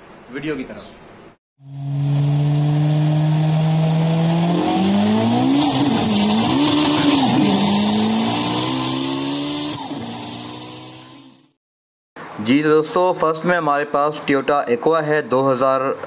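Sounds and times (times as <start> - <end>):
sports car engine revving: 1.6 - 11.5.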